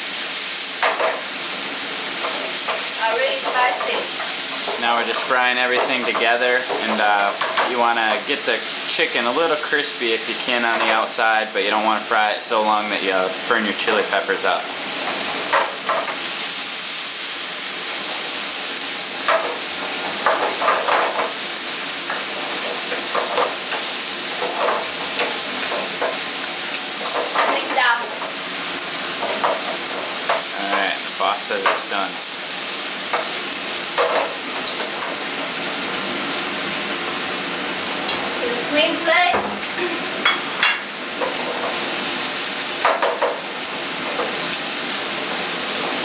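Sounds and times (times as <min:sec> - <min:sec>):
food sizzling in frying pan: 0:00.0 - 0:46.0
wooden spatula scraping: 0:19.2 - 0:32.0.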